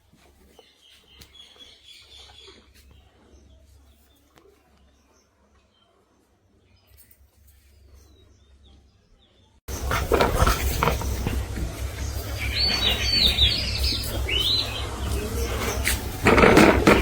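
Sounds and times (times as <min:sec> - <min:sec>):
small birds chirping: 0:00.1 - 0:17.0
rough rumbling background noise: 0:09.7 - 0:17.0.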